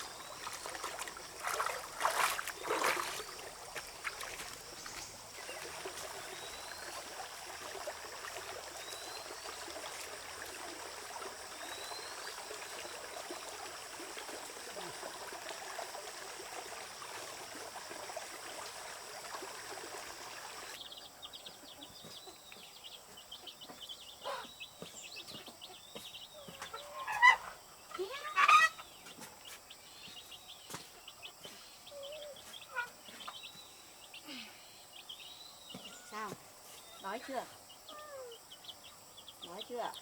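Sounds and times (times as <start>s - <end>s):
adult chicken calling: 26.4s - 28.9s.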